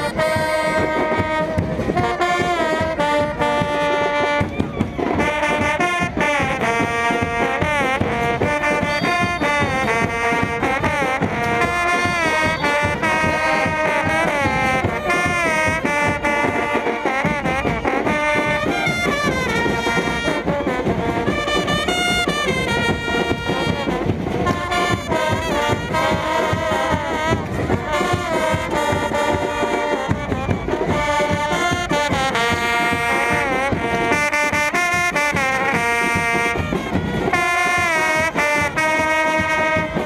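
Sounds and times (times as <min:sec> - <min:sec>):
brass band playing: 0:00.0 - 0:40.0.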